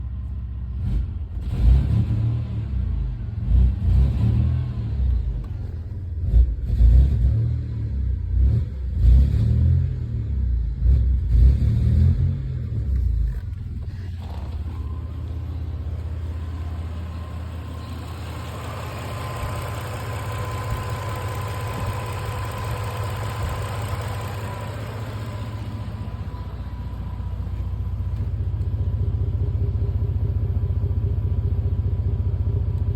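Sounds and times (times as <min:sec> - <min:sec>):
car engine running unevenly: 0:12.9 - 0:30.9.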